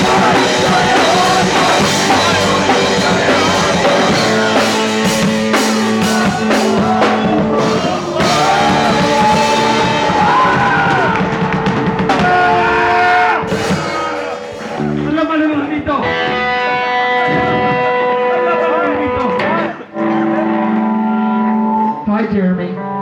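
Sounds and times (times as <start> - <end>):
person singing: 0.0 - 11.3
drum kit hits: 0.0 - 15.2
punk rock band playing live: 0.0 - 21.9
distorted electric guitar: 0.0 - 23.0.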